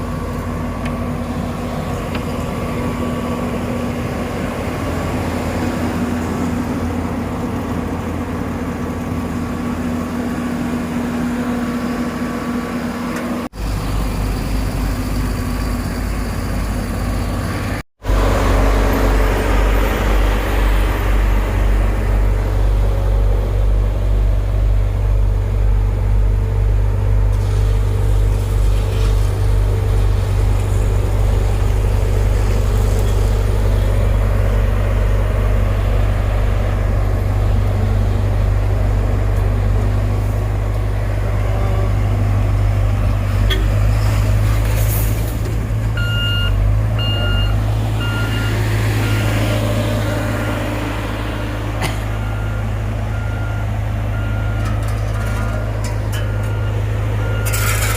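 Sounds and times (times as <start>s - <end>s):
diesel machinery rumbling: 0.0s - 57.9s
reversing alarm beeping: 46.0s - 57.9s.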